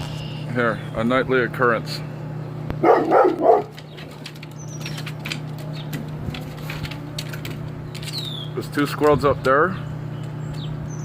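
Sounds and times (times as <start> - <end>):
dog barking: 2.8 - 3.8.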